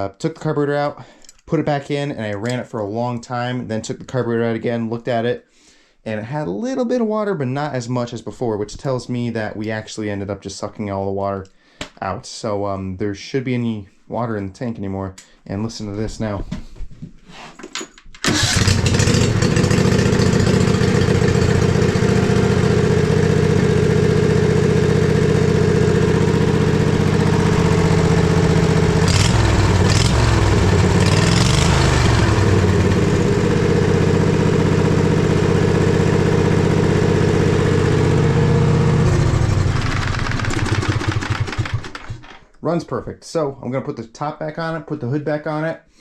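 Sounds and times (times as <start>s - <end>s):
riding mower engine running: 18.2s - 42.3s.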